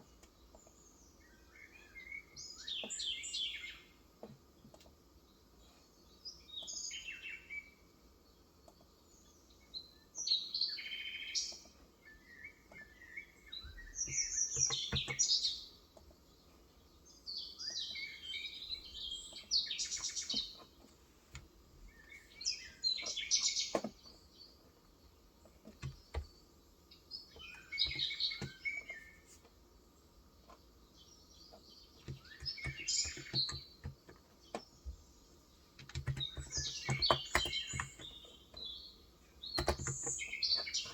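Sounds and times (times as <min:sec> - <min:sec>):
birds chirping and twittering: 0:00.0 - 0:40.9.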